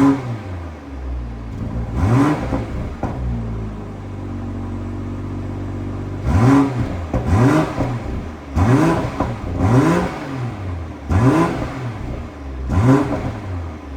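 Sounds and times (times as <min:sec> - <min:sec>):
car engine idling and revving: 0:00.0 - 0:13.9.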